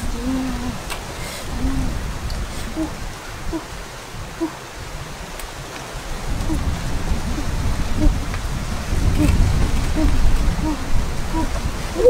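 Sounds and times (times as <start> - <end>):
outdoor hiss: 0.0 - 12.0
bird hooting: 2.7 - 3.7, 10.0 - 12.0.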